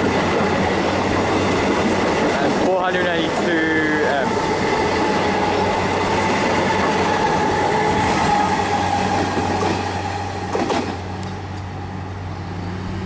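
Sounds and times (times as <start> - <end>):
electric train whine: 0.0 - 13.0
train wheels rumbling on rails: 0.0 - 13.0.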